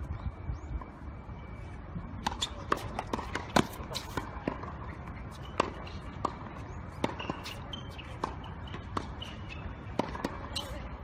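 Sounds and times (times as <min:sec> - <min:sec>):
tennis ball struck and bouncing: 0:02.2 - 0:10.9.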